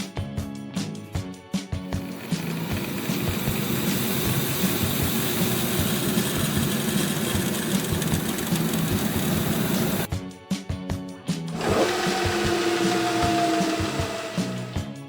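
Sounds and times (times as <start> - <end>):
vehicle engine running: 1.9 - 10.1, 11.6 - 14.8
hiss: 2.1 - 10.1.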